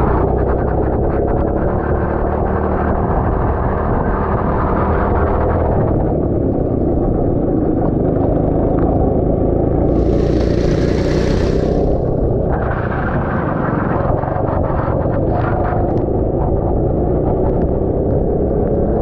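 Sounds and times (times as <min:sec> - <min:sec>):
go-kart engine running: 0:06.5 - 0:14.6
hiss: 0:09.9 - 0:12.2.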